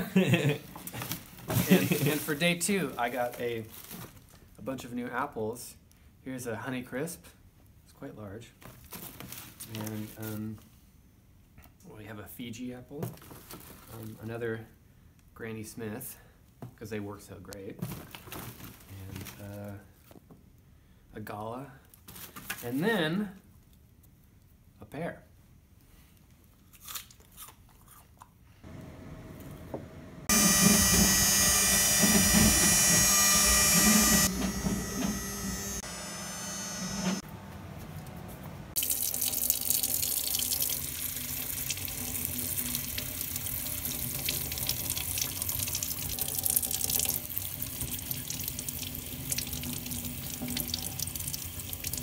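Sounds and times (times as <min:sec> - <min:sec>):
water running from faucet: 0:01.6 - 0:02.4, 0:38.8 - 0:52.0.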